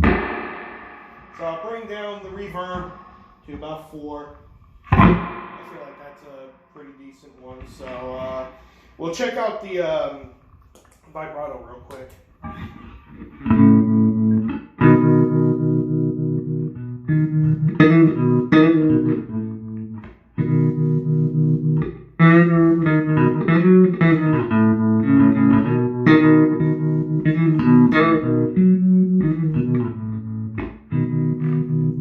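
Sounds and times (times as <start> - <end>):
electric bass with vibrato: 0.0 - 3.5, 4.7 - 6.7, 12.5 - 32.0.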